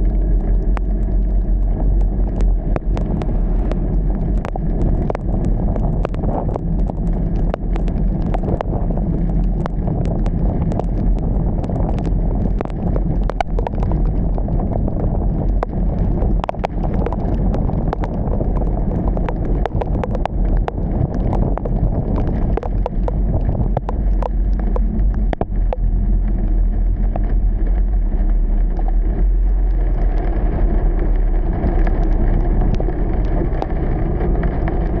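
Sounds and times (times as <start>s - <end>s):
car rumbling on wet road: 0.0s - 35.0s
raindrops tapping on car: 0.0s - 35.0s.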